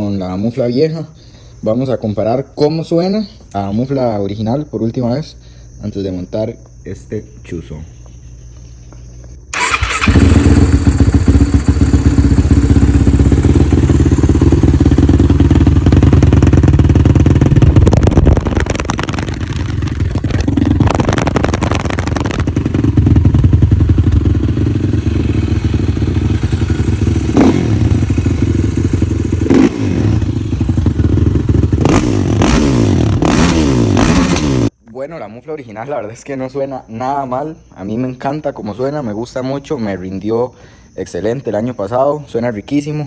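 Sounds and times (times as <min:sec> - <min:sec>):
quad engine revving: 0:09.5 - 0:34.7.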